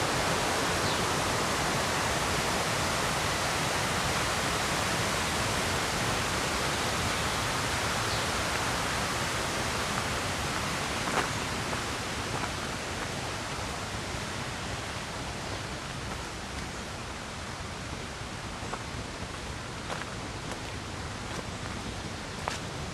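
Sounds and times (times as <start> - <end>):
river rapids roaring: 0.0 - 14.5.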